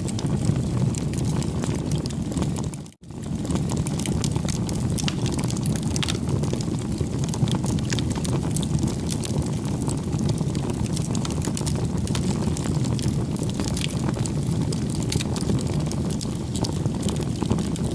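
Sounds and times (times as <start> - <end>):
wood fire crackling and popping: 0.0 - 17.9.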